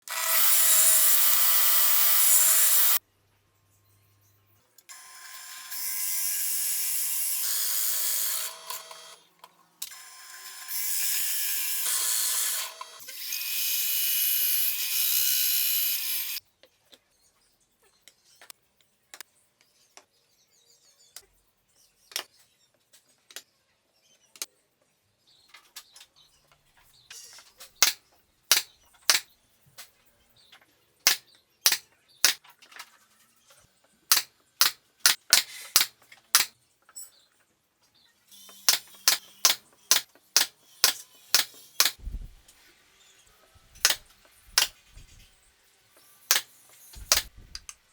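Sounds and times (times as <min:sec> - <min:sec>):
power tool whining on wood: 0:00.0 - 0:03.0, 0:04.9 - 0:09.2, 0:09.9 - 0:16.4
sharp taps and knocks: 0:47.0 - 0:47.8.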